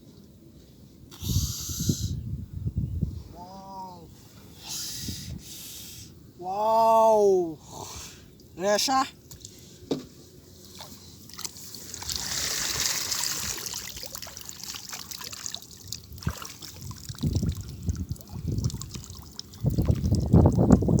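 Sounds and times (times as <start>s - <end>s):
water splashing and sloshing: 10.5s - 21.0s
water trickling: 10.6s - 21.0s.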